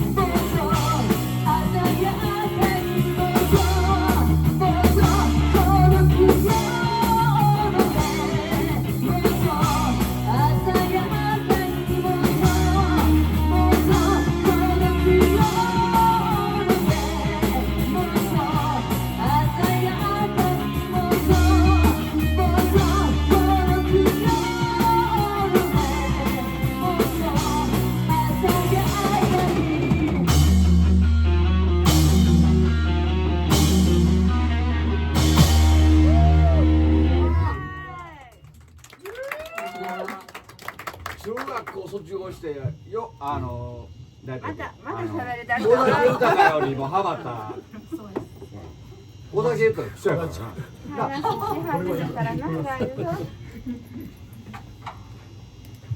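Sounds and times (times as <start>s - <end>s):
person singing: 0.0s - 30.2s
drum kit: 0.0s - 38.0s, 40.6s - 50.5s
bass guitar: 0.0s - 38.4s
electric guitar: 0.0s - 40.6s.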